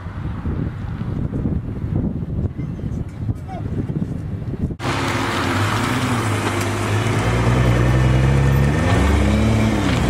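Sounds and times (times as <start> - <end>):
car engine revving: 4.8 - 10.0.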